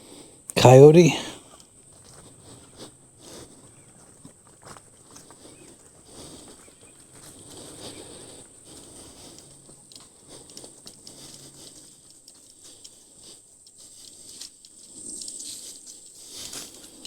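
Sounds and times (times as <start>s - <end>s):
footsteps on dirt trail: 2.0s - 9.8s.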